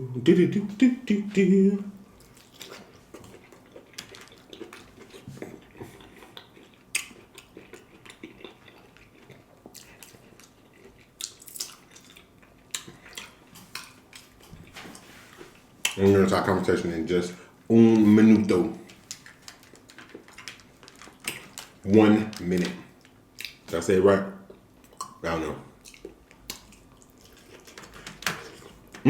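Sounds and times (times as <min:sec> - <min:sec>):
person chewing food: 0:02.0 - 0:16.0, 0:18.8 - 0:23.8, 0:24.4 - 0:25.2, 0:25.8 - 0:29.0.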